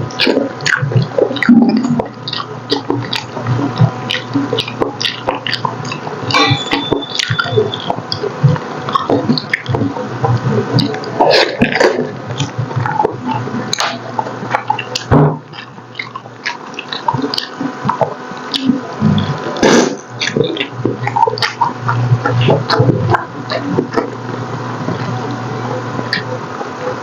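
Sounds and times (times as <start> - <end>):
wet chewing and lip smacking: 0.0 - 27.0.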